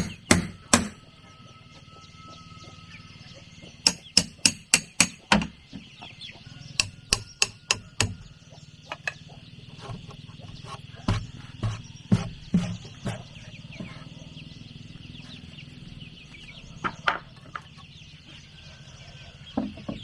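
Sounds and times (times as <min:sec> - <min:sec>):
hammer striking wood: 0:00.0 - 0:01.1, 0:03.9 - 0:05.6, 0:06.8 - 0:08.3, 0:11.1 - 0:13.2.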